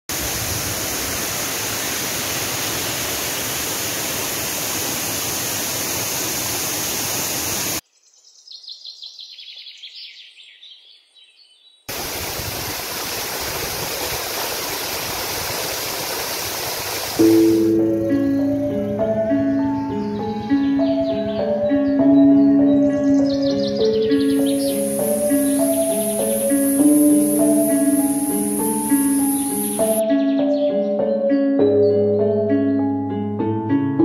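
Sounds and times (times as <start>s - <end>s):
waterfall roaring: 0.1s - 7.8s, 11.9s - 18.8s, 24.0s - 30.0s
high bird chirps: 17.2s - 31.2s.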